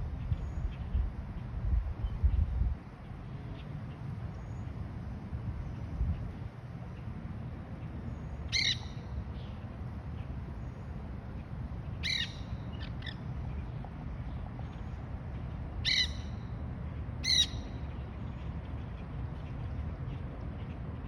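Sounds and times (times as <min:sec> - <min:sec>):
parrots calling: 0:08.5 - 0:08.9, 0:12.0 - 0:13.2, 0:15.8 - 0:16.2, 0:17.2 - 0:17.6.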